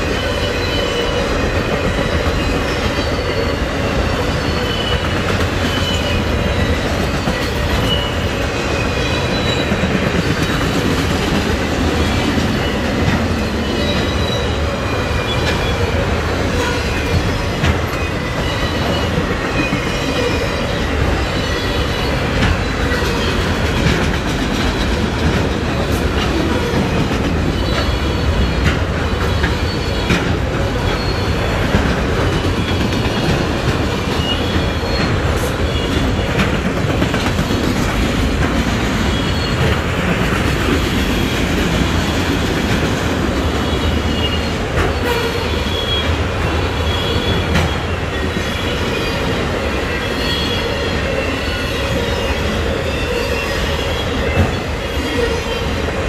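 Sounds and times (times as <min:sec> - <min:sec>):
wheel squeals: 0:00.0 - 0:10.8, 0:12.0 - 0:24.1, 0:25.7 - 0:36.6
train wheels rumbling on rails: 0:00.0 - 0:56.0.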